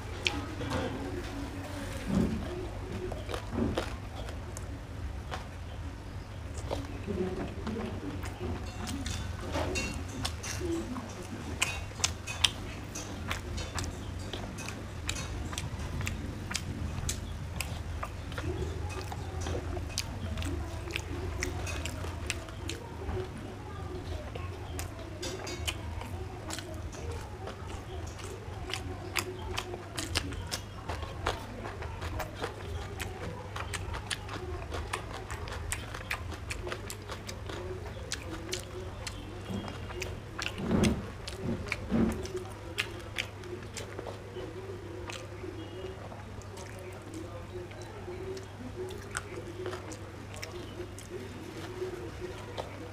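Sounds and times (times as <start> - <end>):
chewing rice: 0.0 - 52.9
rice squishing on metal plate: 0.0 - 52.9
steady low hum: 0.0 - 52.9.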